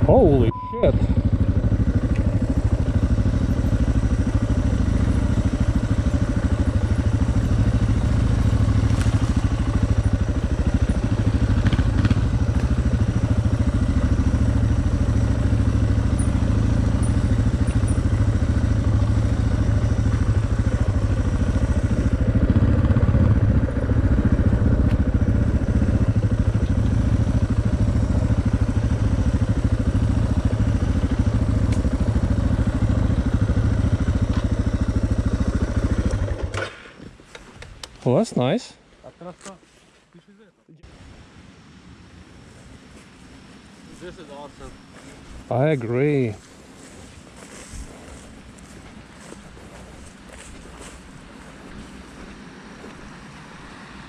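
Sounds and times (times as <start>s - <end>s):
motorcycle engine running: 0.0s - 36.9s, 42.5s - 54.0s
motorcycle knocks and rattles: 1.1s - 37.8s.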